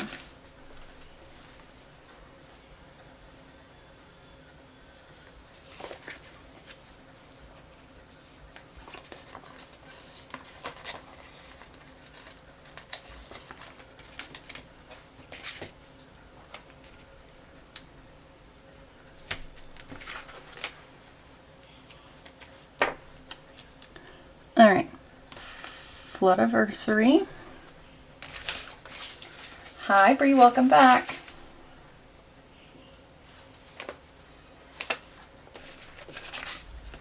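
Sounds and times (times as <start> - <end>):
faint steady hum: 0.0 - 37.0
paper rustling: 5.6 - 7.5, 8.3 - 17.1, 19.2 - 20.9, 27.3 - 31.5, 33.3 - 37.0.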